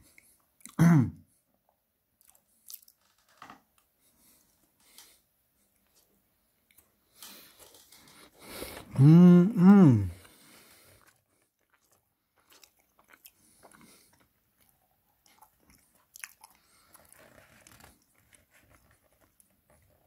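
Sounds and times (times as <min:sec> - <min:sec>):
faint wet chewing clicks: 0:02.2 - 0:03.0, 0:11.0 - 0:17.3.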